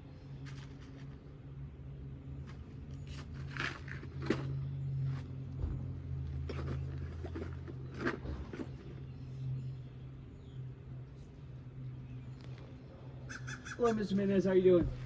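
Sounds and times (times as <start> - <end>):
steady low hum: 0.0 - 15.0
roof shingle scraping and rustling: 6.4 - 9.3.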